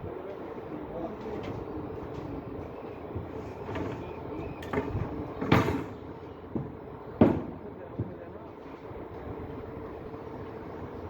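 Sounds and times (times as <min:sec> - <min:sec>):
sharp knocks: 0:06.6 - 0:07.6.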